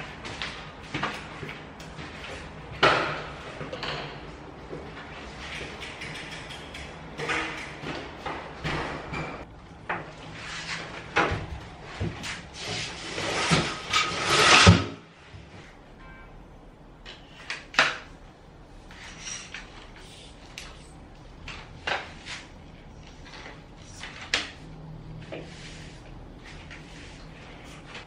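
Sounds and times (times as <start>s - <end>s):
knocks and scraping on tiled floor: 0.2s - 15.6s.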